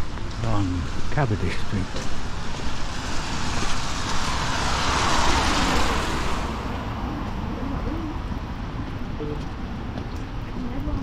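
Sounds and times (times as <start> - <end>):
car tyres hissing on wet road: 0.0 - 7.1.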